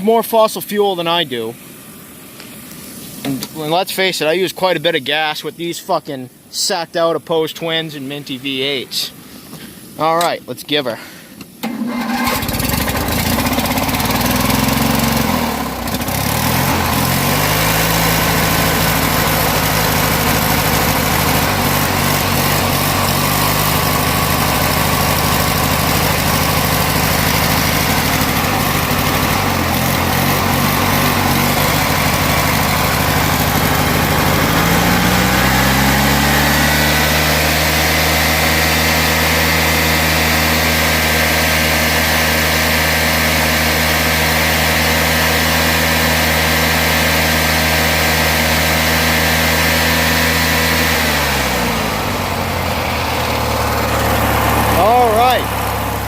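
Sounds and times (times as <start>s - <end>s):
mower engine idling: 11.4s - 56.0s.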